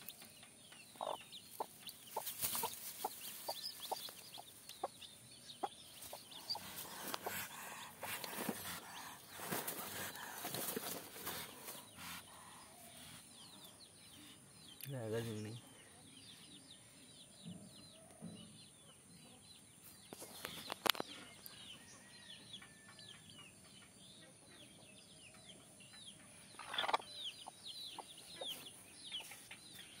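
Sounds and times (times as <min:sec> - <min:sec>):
small birds chirping: 0:00.0 - 0:30.0
rustles: 0:01.5 - 0:04.6, 0:06.0 - 0:12.2.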